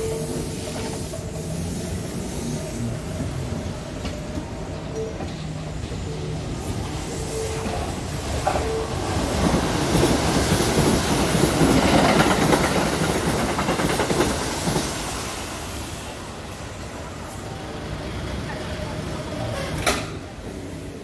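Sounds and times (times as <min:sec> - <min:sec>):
train wheels clattering over rail joints: 0:08.4 - 0:14.9.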